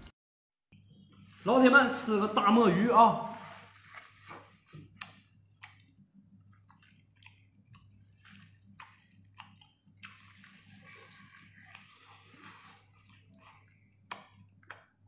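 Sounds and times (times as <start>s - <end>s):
low steady hum: 0.7s - 15.0s
wet biting and chewing: 3.6s - 15.0s.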